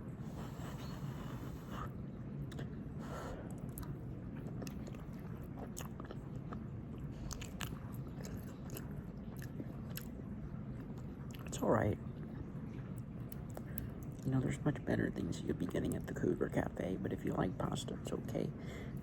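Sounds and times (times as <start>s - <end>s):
steady low hum: 0.0s - 19.0s
person chewing food: 0.2s - 11.5s, 12.8s - 14.2s.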